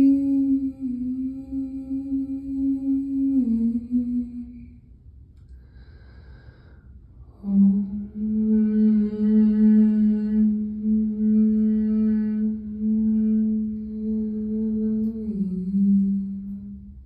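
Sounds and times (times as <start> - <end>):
soft breath: 4.5 - 7.5
person humming: 7.4 - 16.8.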